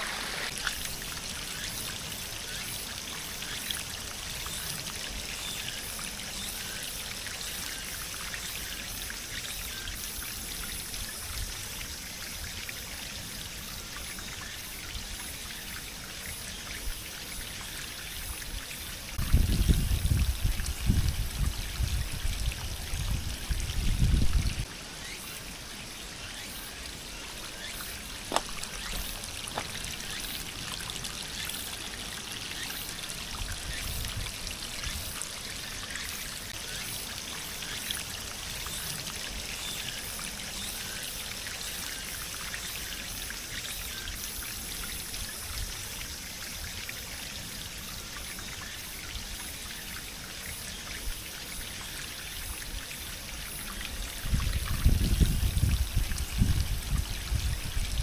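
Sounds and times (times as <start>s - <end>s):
heavy rain: 0.0s - 0.6s
water trickling and pouring: 0.0s - 58.0s.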